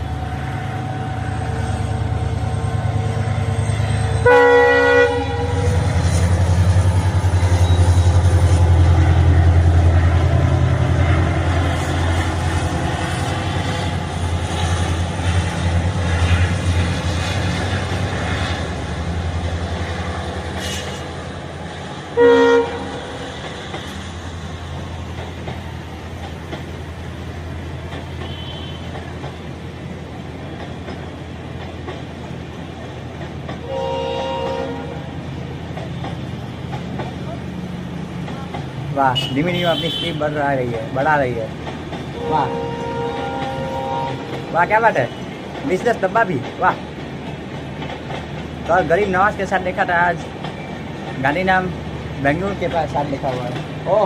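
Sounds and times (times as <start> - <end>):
locomotive deep rumble: 0.0 - 54.0
train horn blasts: 4.2 - 5.9, 22.2 - 23.1, 28.2 - 29.0, 33.6 - 35.1, 39.2 - 40.2, 42.2 - 44.5
train wheels clattering: 5.5 - 22.2, 22.8 - 54.0.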